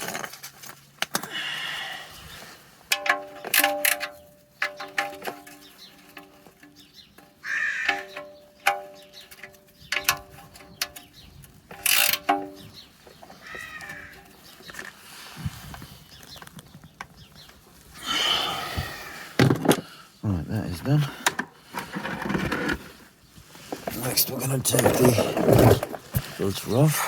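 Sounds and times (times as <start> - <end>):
crow cawing: 7.4 - 8.2, 13.4 - 14.3
ratchet clicking metallically: 11.8 - 12.3.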